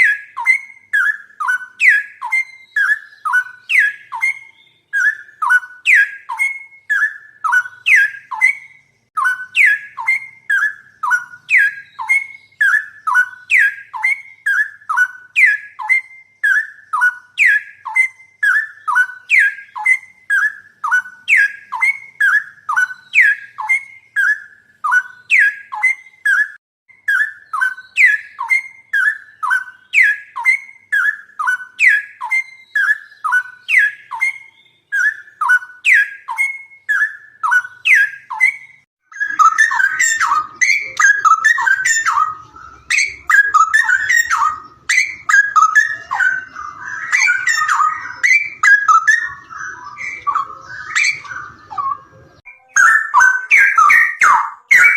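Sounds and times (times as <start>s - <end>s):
jumbled bird chirping: 0.0s - 54.9s.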